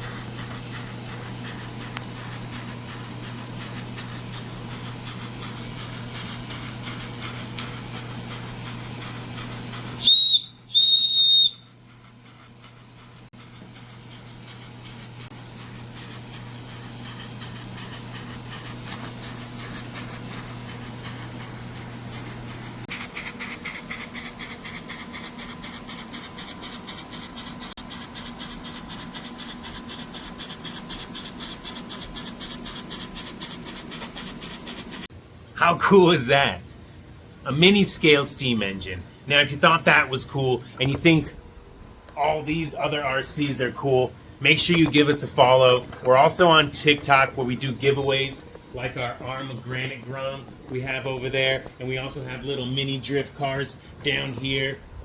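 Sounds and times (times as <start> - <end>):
steam engine hissing: 0.0 - 12.4
steam whistle blasts: 10.0 - 11.8.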